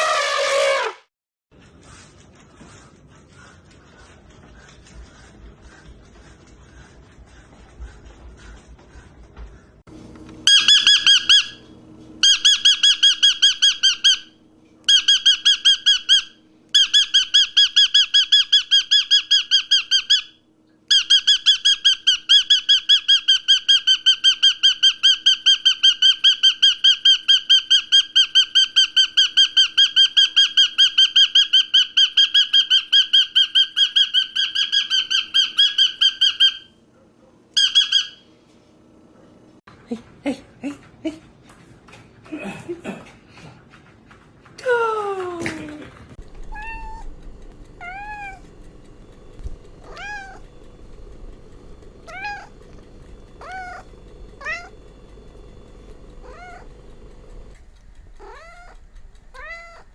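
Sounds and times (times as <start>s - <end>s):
bird rapidly repeated high call: 10.5s - 11.6s, 12.2s - 14.3s, 14.9s - 36.7s, 37.6s - 38.2s, 52.0s - 52.6s, 53.4s - 54.8s
faint low hum: 33.4s - 59.9s.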